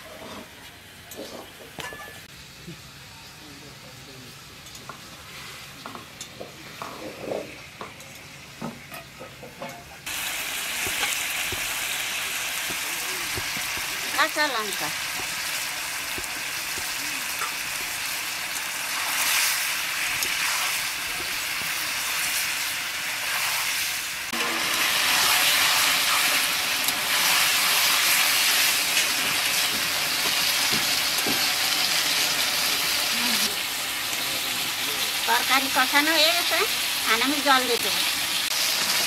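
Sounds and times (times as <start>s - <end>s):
pumpkin sizzling in hot oil: 10.0s - 39.0s.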